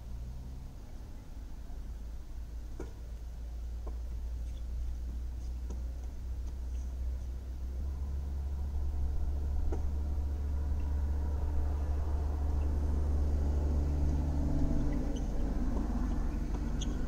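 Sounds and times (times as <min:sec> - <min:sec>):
car idling from inside cabin: 0:00.0 - 0:17.0
second engine hum: 0:00.0 - 0:17.0
tennis ball off racket: 0:02.7 - 0:03.0, 0:05.1 - 0:06.6, 0:09.6 - 0:10.0.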